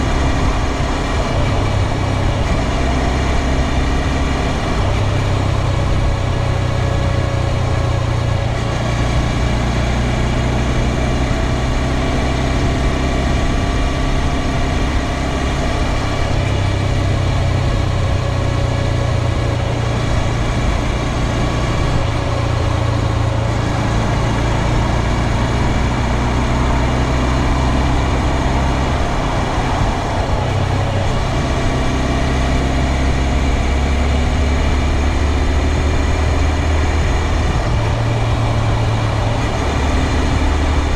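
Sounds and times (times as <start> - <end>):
motorcycle engine running: 0.0 - 40.9
drifting high tone: 21.8 - 34.6.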